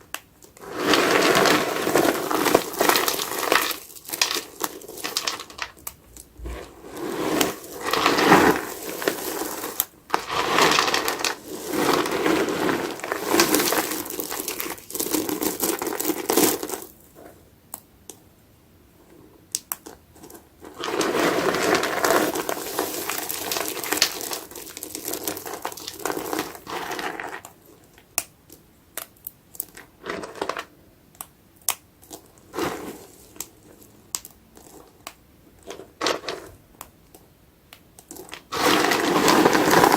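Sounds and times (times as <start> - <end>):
soapy sponge squelching: 6.4 - 14.8.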